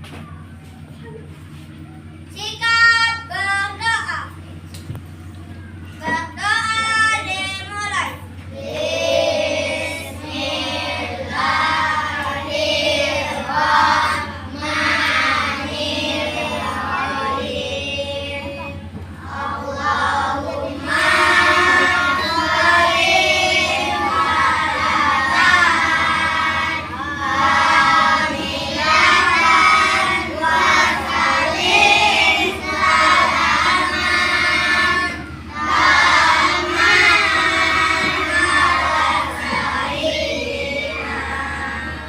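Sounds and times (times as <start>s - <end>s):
children singing: 8.5s - 42.0s.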